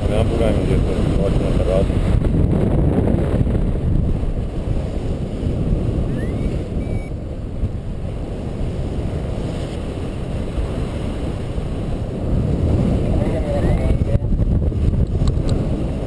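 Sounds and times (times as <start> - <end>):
wind buffeting microphone: 0.0 - 16.0
faint rising chirp: 6.0 - 7.2.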